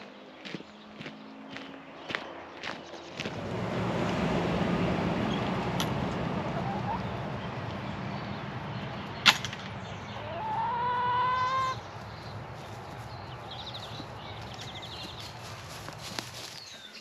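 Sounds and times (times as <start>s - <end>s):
low background rumble: 3.2s - 12.1s
small birds trilling: 5.2s - 17.0s
rooster crowing: 10.2s - 11.8s.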